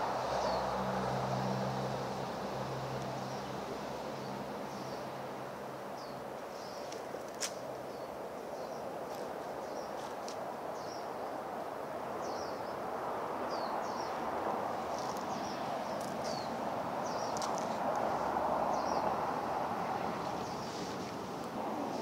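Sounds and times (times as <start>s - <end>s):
small birds chirping: 3.2s - 5.2s, 5.9s - 11.2s, 12.2s - 12.9s, 13.5s - 14.2s, 14.8s - 19.3s
steady rushing noise: 6.6s - 22.0s.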